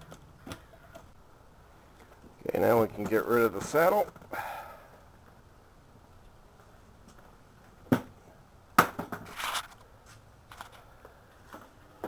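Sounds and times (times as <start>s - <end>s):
scraping rustle: 9.2s - 10.9s.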